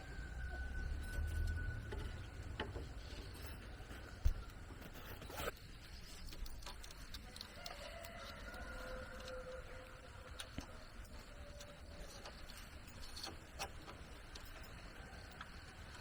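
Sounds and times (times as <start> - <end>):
rooster crowing: 0.0 - 2.0, 7.5 - 12.3.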